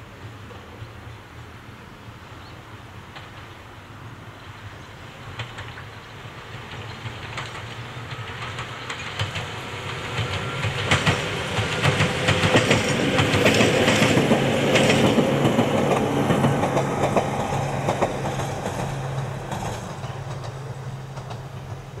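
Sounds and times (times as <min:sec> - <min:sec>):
electric train passing: 0:00.0 - 0:22.0
wheels clicking over rail joints: 0:04.8 - 0:22.0.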